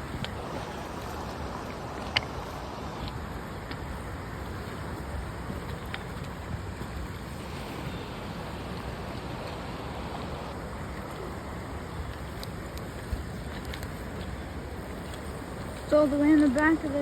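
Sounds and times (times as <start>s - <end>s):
river water rushing: 0.0s - 17.0s
wind on microphone: 0.0s - 17.0s.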